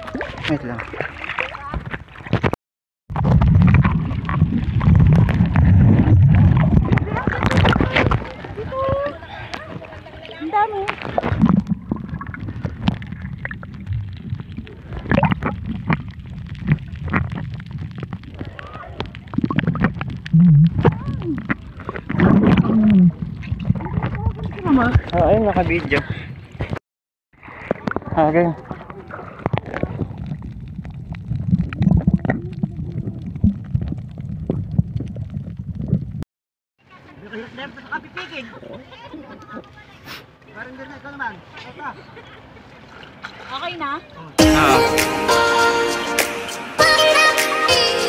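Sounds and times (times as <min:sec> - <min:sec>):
underwater clicks and pops: 0:01.7 - 0:08.4, 0:10.8 - 0:25.2, 0:27.6 - 0:36.2
muffled underwater rumble: 0:03.1 - 0:26.8, 0:27.4 - 0:36.2
underwater clicks and knocks: 0:03.2 - 0:09.6.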